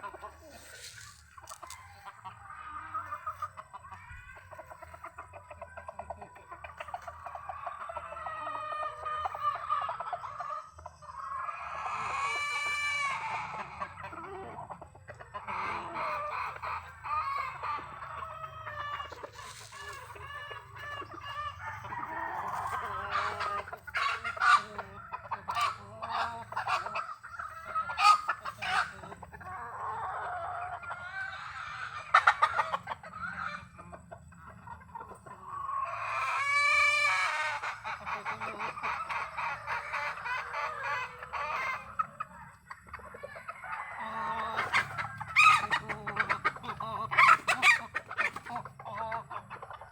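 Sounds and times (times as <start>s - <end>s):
chickens clucking: 0.0s - 49.9s
rooster crowing: 21.5s - 23.4s.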